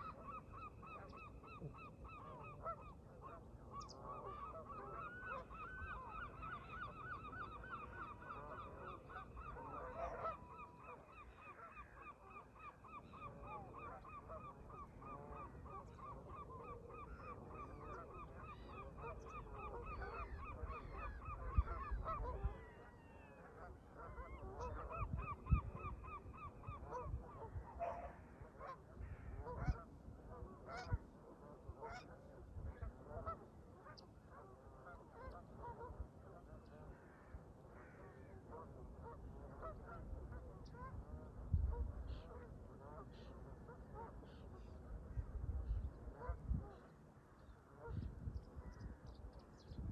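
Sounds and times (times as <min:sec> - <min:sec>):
geese honking: 0:00.0 - 0:12.0
wind rumble on microphone: 0:17.4 - 0:23.4, 0:24.1 - 0:28.3, 0:28.9 - 0:33.5, 0:38.8 - 0:43.6, 0:44.7 - 0:49.9.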